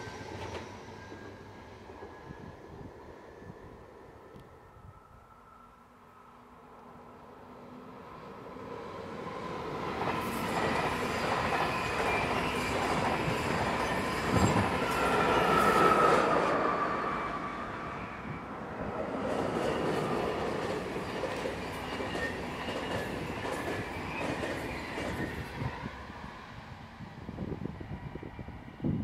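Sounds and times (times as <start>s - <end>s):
train whine: 0.0s - 29.0s
trains rolling on rails: 0.0s - 29.0s.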